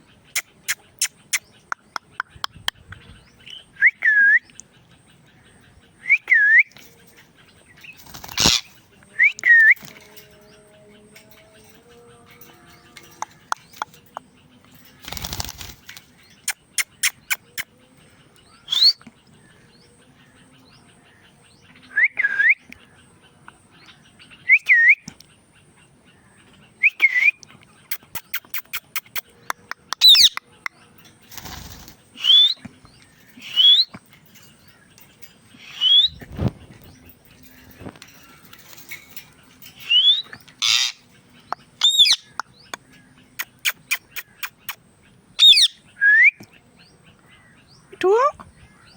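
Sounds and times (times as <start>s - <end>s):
parakeet whistled calls: 18.7s - 19.0s, 32.2s - 32.6s, 33.4s - 33.9s, 45.4s - 46.3s.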